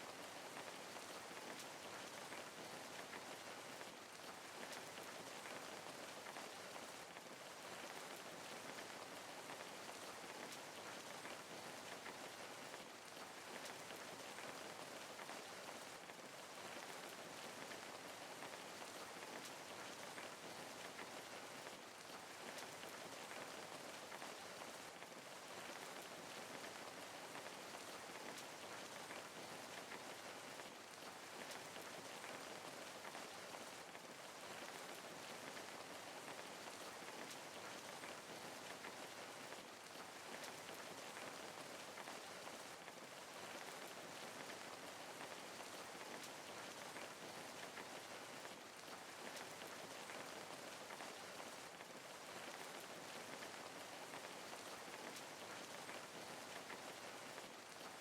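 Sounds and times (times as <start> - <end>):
rain pattering on surface: 0.0 - 58.0.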